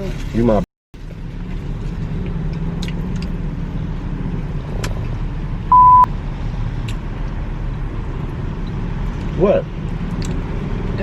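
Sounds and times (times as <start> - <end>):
road rumble inside moving car: 0.0 - 11.0
censor bleep: 5.7 - 6.1.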